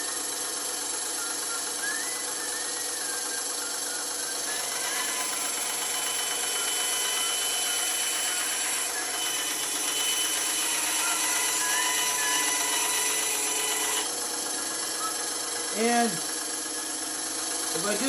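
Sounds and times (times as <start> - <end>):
bandsaw cutting wood: 4.3 - 14.2.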